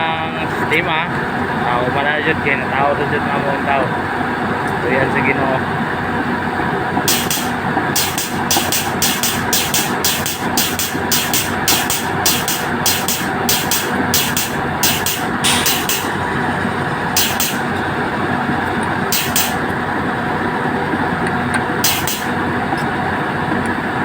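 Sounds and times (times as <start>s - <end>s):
diesel engine running: 1.3s - 24.0s
short bursts of hiss: 7.1s - 17.8s, 19.1s - 19.6s, 21.8s - 22.4s.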